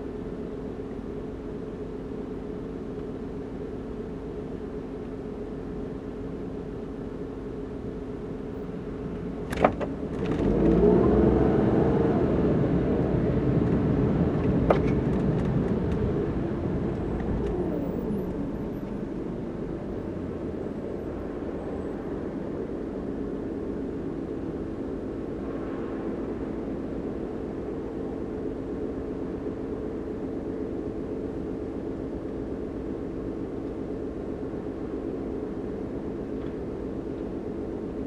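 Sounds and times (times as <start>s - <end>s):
car engine accelerating: 10.0s - 24.1s
car engine idling: 13.1s - 38.0s.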